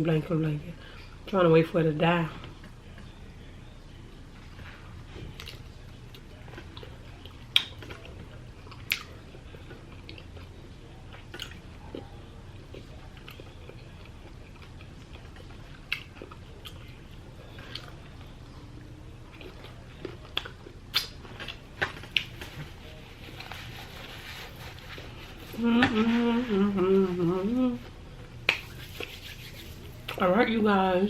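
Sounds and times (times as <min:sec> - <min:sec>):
person chewing food: 0:04.6 - 0:26.0.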